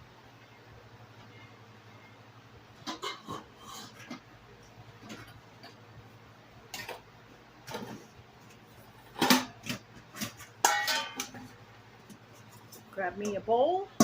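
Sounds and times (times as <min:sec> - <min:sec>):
dishes knocking and clinking: 0:09.1 - 0:11.5.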